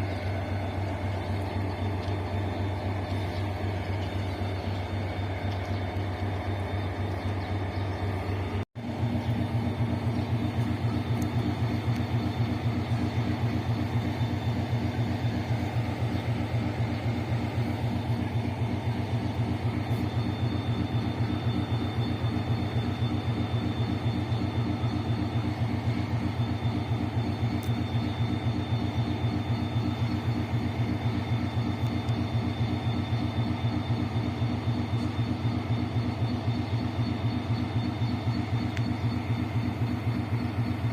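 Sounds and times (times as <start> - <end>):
diesel locomotive engine rumbling: 0.0 - 40.9.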